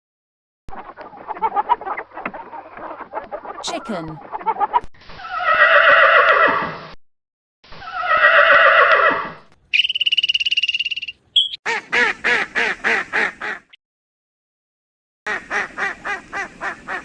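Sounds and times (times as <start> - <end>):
farm animal calls: 7.8 - 13.6.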